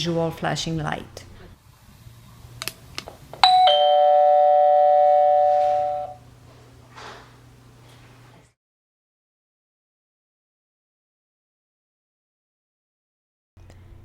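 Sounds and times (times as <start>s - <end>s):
faint steady hum: 0.0s - 8.6s
two-note door chime: 3.4s - 6.2s.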